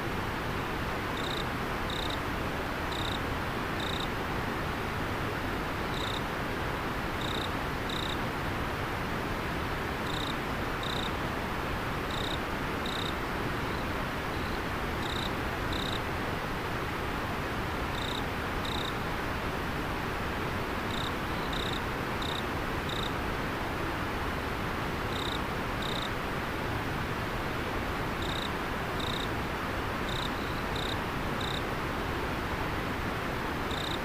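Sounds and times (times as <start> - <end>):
insect chirping: 1.2 - 2.2, 2.9 - 3.2, 3.8 - 4.1, 5.9 - 6.2, 7.2 - 8.2, 10.0 - 11.1, 12.1 - 13.1, 13.7 - 16.0, 18.0 - 18.9, 20.9 - 23.1, 25.1 - 26.1, 28.2 - 29.3, 30.1 - 31.6, 33.7 - 34.0.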